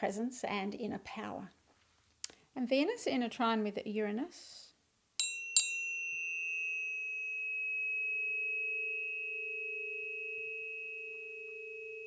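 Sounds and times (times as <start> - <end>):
tuning fork metallic tap: 5.2 - 12.0
tuning fork ringing tone: 5.2 - 12.0.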